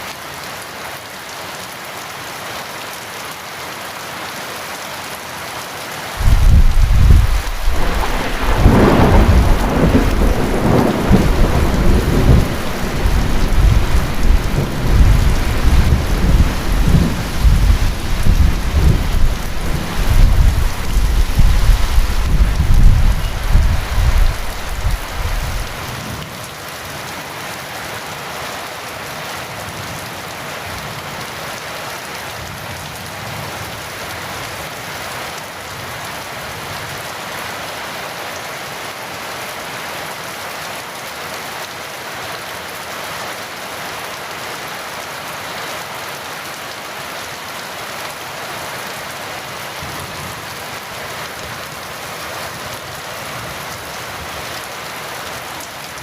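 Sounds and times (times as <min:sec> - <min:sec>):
heavy rain: 0:00.0 - 0:56.0
thunder rolling: 0:06.2 - 0:25.9.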